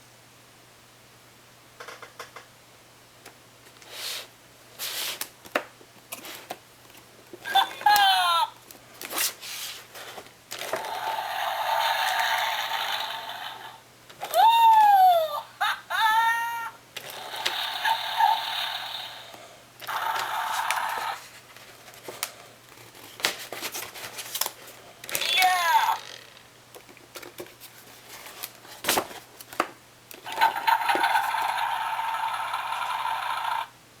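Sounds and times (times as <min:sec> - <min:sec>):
electronic hiss from toy speaker: 0:10.8 - 0:13.8, 0:17.1 - 0:21.3, 0:30.4 - 0:33.7
toy sound effect falling sweeps: 0:11.0 - 0:13.8, 0:17.3 - 0:19.3
toy plastic clicks and knocks: 0:25.1 - 0:26.4.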